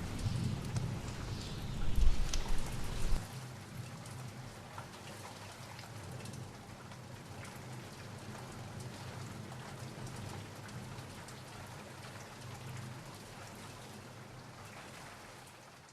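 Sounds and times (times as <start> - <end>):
low rumble: 0.0 - 3.2
steady rain falling: 0.0 - 15.9.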